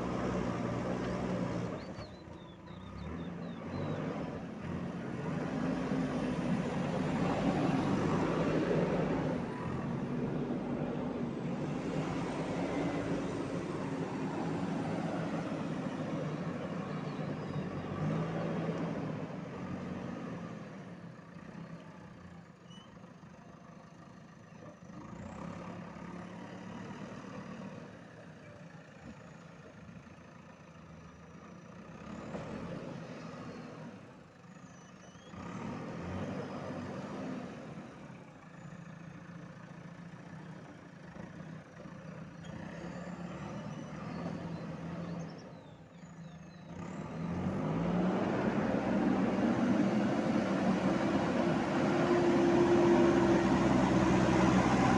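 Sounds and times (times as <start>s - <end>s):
backhoe diesel engine working: 0.0s - 54.9s.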